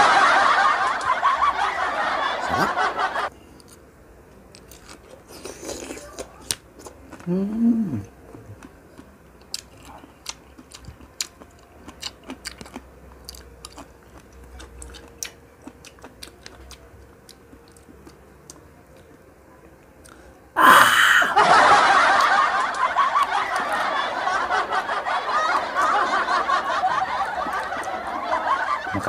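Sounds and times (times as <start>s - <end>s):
person chewing fruit: 3.3s - 3.8s, 4.5s - 19.2s, 20.0s - 21.3s.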